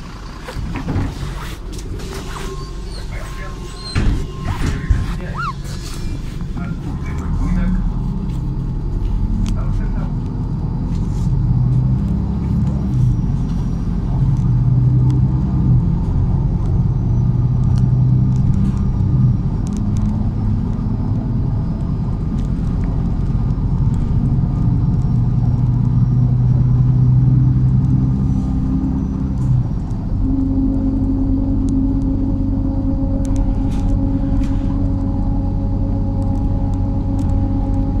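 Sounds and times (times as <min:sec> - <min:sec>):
bus engine running: 0:00.0 - 0:38.0.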